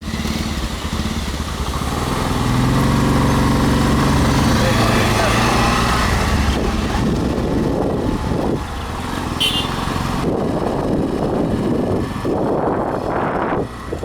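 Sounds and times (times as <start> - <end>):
motorcycle engine running: 0.0 - 14.0
road and wind noise: 0.0 - 14.0.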